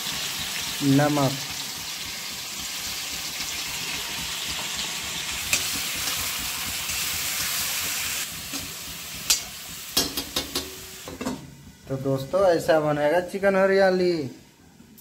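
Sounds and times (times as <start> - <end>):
chicken sizzling in hot oil: 0.0 - 11.3
metal spatula clinking on pan: 9.3 - 11.4.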